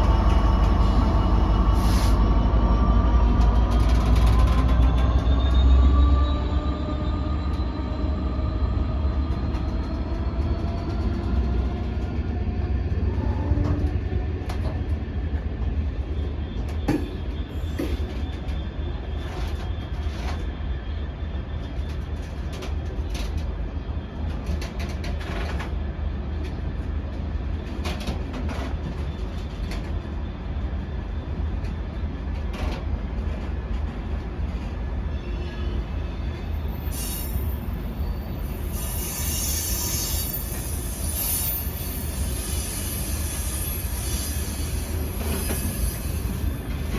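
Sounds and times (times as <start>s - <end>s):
freight train rumbling past: 0.0s - 46.9s
high-pitched wheel squeal: 35.1s - 46.9s.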